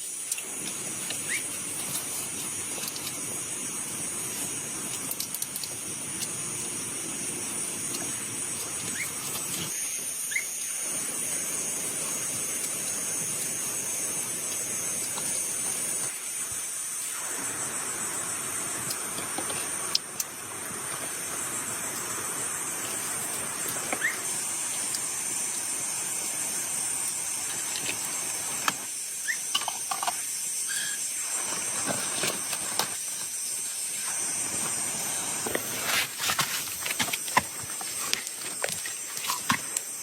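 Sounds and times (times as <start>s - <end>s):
heavy rain hissing: 29.9s - 40.0s.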